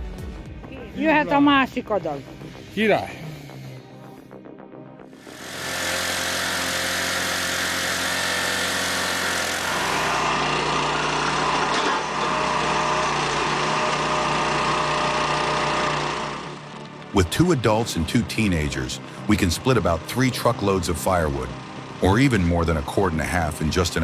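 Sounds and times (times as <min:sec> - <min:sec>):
small engine running: 0:05.0 - 0:24.0.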